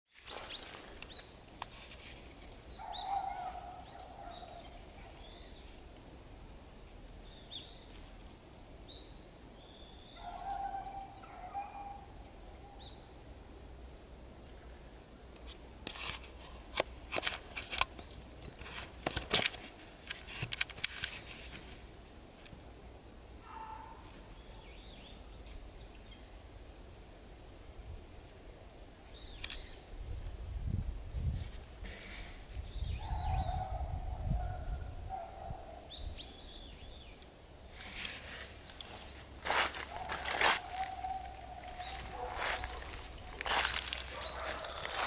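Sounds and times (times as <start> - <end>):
lower bird calls: 8.9 - 13.2, 32.1 - 37.2, 39.5 - 45.0.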